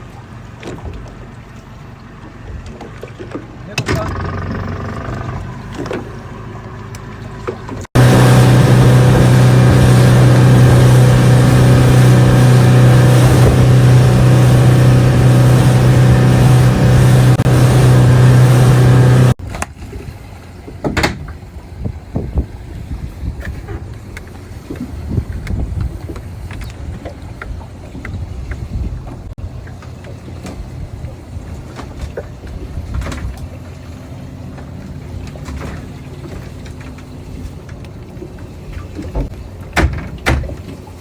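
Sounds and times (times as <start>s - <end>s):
loud boat engine running: 3.9s - 19.4s
wind noise: 8.0s - 19.4s, 24.9s - 27.0s.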